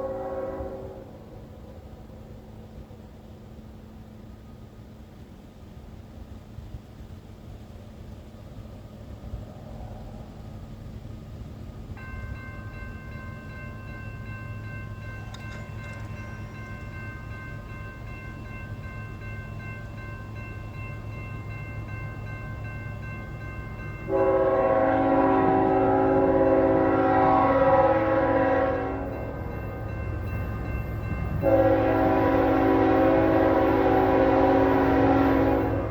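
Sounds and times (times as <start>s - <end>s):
locomotive air horn blast: 0.0s - 1.4s, 24.1s - 29.4s, 31.4s - 35.9s
freight train rumble: 0.0s - 35.9s
crossing signal ringing: 12.0s - 35.9s.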